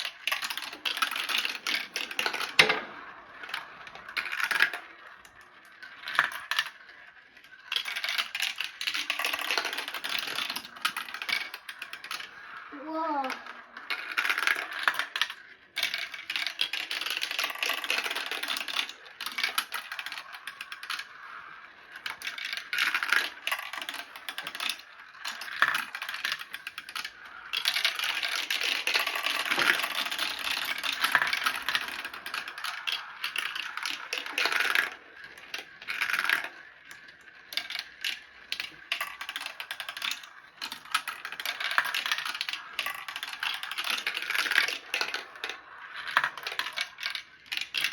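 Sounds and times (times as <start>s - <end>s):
marbles clacking down a marble run: 0.0s - 47.9s.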